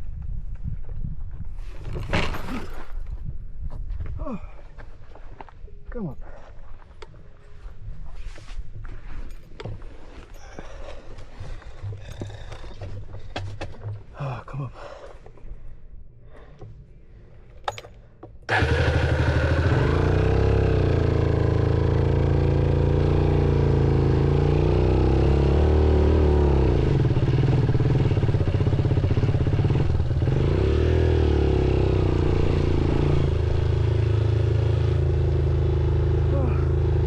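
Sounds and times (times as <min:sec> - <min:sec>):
motorcycle engine running: 0:18.5 - 0:37.0.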